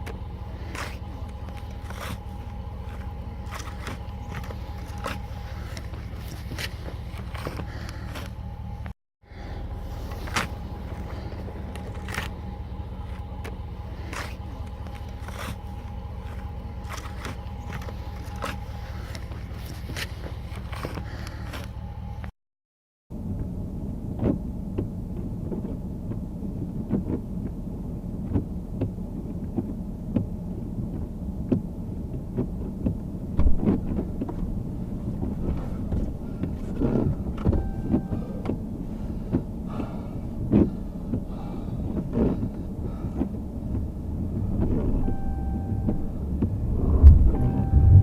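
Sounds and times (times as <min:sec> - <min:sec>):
vehicle engine rumble: 0:00.0 - 0:22.4, 0:23.1 - 0:48.0
knocks and clunks: 0:28.2 - 0:41.3, 0:41.9 - 0:48.0
faint steady tones: 0:33.0 - 0:48.0.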